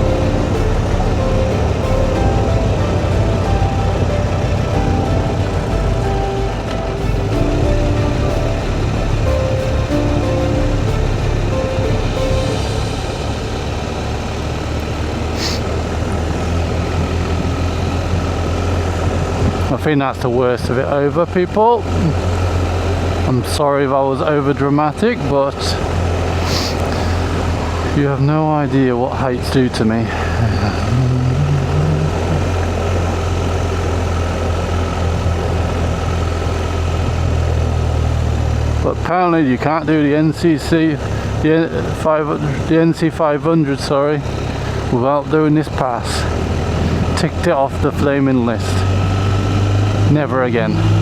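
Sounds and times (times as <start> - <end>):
motorcycle engine drone: 0.0 - 51.0
wind and road noise: 0.0 - 51.0
short hiss: 15.3 - 15.7, 26.4 - 27.4.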